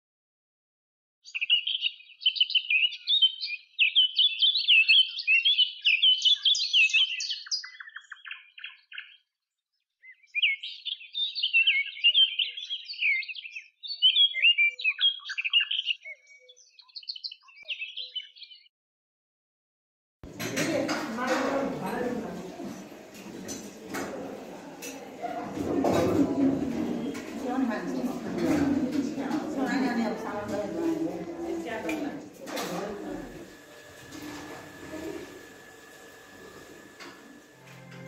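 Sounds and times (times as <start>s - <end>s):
small birds chattering: 1.3s - 9.3s, 10.0s - 18.7s.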